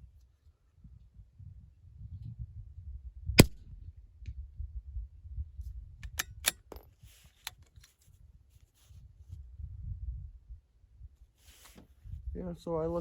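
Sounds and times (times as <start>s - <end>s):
rifle shot: 3.4s - 3.6s
rifle bolt metallic clicks: 6.0s - 6.8s.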